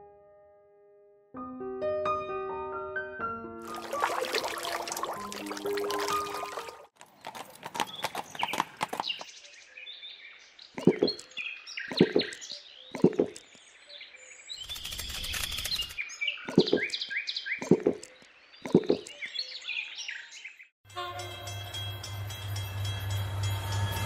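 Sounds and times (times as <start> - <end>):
birds chirping: 3.8 - 20.7.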